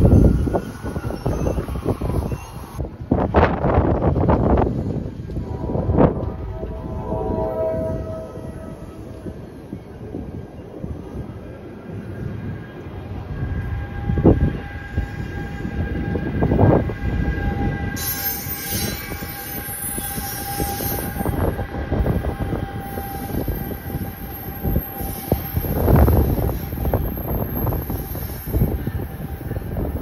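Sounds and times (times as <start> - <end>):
train rumble and rail clatter: 0.0 - 30.0
steady high whine: 5.0 - 10.3.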